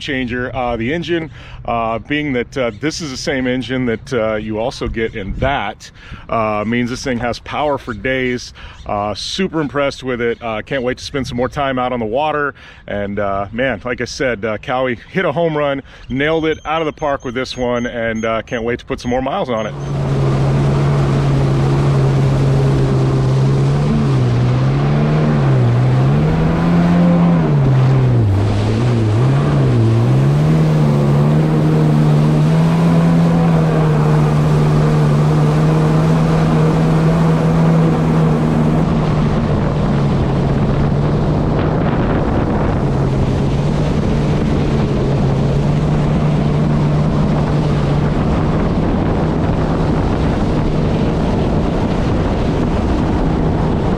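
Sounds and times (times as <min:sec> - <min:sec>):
jet ski engine running: 0:00.0 - 0:09.8, 0:13.0 - 0:53.9
water rushing along hull: 0:00.0 - 0:53.9
wind on microphone: 0:04.5 - 0:06.5, 0:19.6 - 0:53.9.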